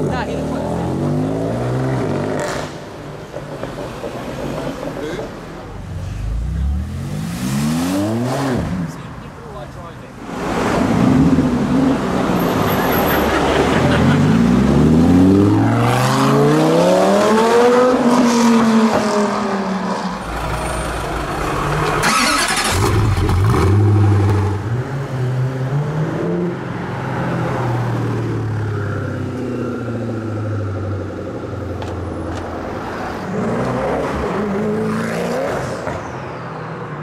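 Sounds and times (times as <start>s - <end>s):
car engine accelerating: 20.2s - 25.2s.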